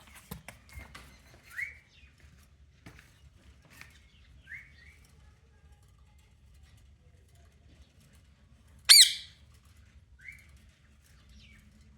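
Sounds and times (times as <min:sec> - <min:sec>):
parrot whistling: 0:08.9 - 0:09.3.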